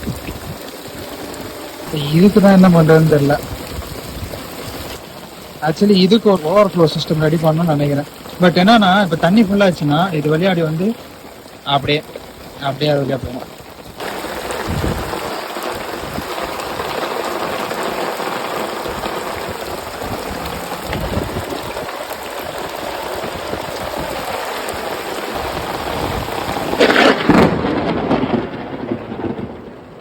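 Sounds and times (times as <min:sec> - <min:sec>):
heavy rain pouring: 0:00.0 - 0:30.0
thunder clap: 0:14.0 - 0:30.0.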